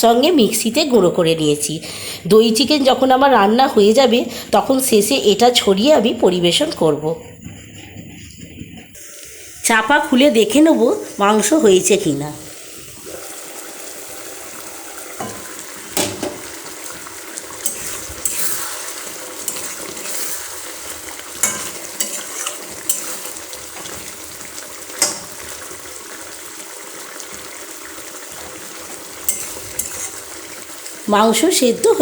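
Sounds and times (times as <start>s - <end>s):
curry sizzling in a pan: 9.0s - 32.0s
utensil clinking against pan: 21.4s - 23.3s, 25.0s - 25.4s, 29.3s - 30.2s.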